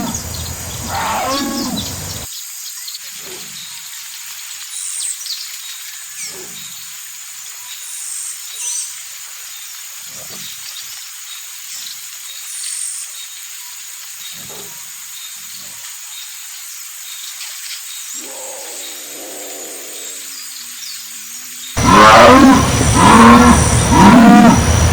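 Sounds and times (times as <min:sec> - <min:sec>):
jaguar growl: 0:00.0 - 0:02.3, 0:18.2 - 0:20.4, 0:21.8 - 0:24.9
jaguar grunting calls: 0:00.0 - 0:02.3, 0:18.2 - 0:20.7, 0:21.7 - 0:24.9
steady background hiss: 0:00.0 - 0:09.9, 0:12.3 - 0:24.9.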